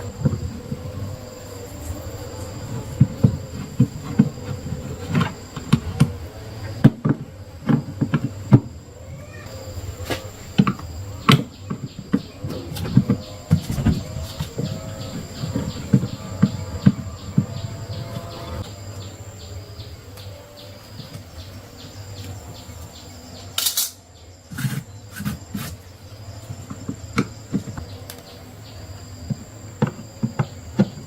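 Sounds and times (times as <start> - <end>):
faint high-pitched whine: 0.0 - 31.0.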